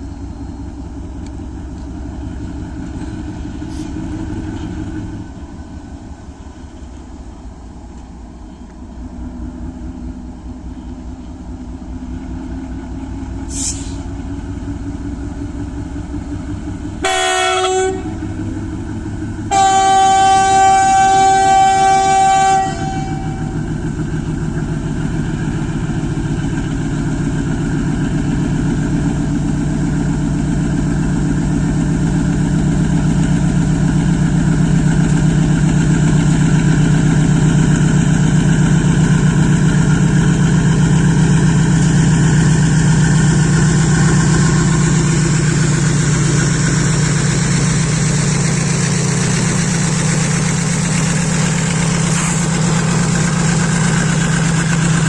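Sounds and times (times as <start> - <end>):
locomotive engine throbbing: 0.0 - 55.0
multi-tone locomotive horn: 17.0 - 18.4, 19.5 - 23.7.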